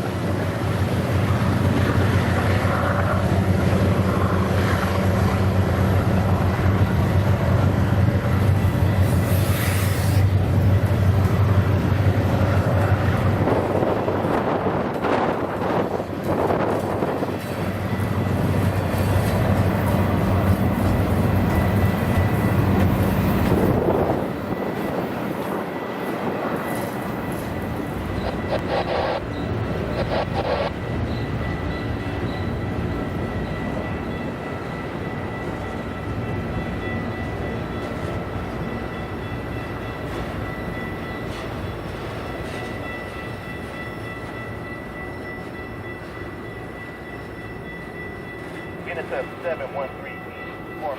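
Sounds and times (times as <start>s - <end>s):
locomotive engine drone: 0.0s - 50.9s
train rolling past: 0.0s - 50.9s
thin high whine: 27.3s - 31.6s.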